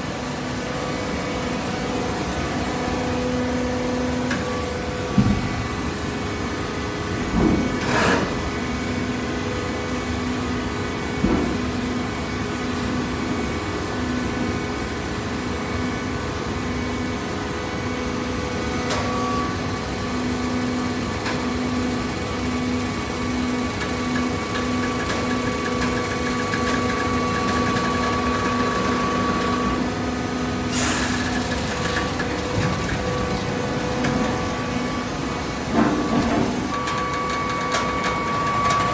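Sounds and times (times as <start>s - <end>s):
baler machine hum: 16.6s - 38.9s.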